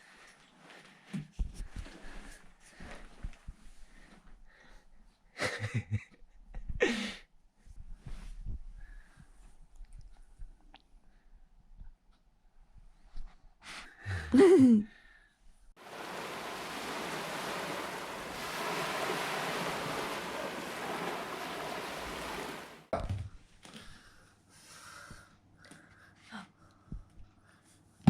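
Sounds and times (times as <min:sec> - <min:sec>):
waves breaking: 0:15.8 - 0:22.9
wind on microphone: 0:15.8 - 0:22.9.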